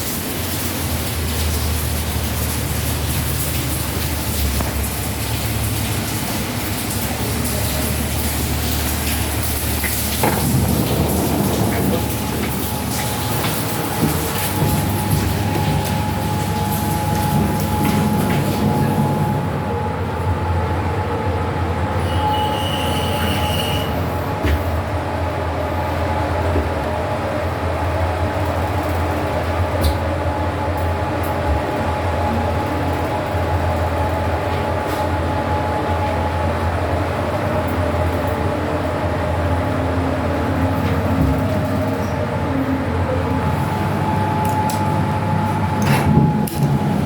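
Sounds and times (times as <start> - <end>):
lift high squeal: 21.9 - 24.4.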